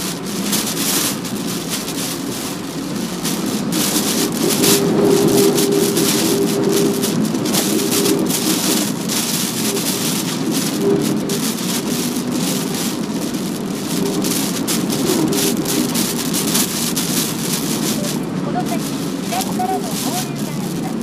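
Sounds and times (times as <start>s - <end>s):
heavy rain and wind on car: 0.0s - 21.0s.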